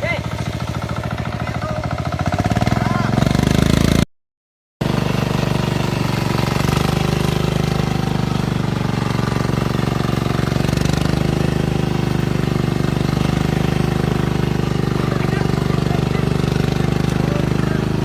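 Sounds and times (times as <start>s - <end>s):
tractor engine knocking: 0.0s - 3.8s, 4.8s - 18.0s.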